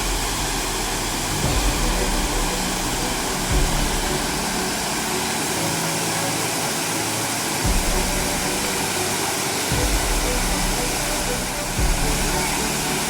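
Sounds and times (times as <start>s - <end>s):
low thumps: 0.0s - 5.4s, 7.7s - 8.8s, 9.7s - 13.0s
stream water rushing: 0.0s - 13.0s.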